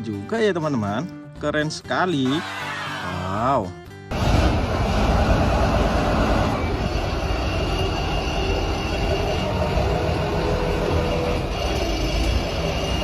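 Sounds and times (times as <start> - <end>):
vehicle engine running: 4.1 - 13.0.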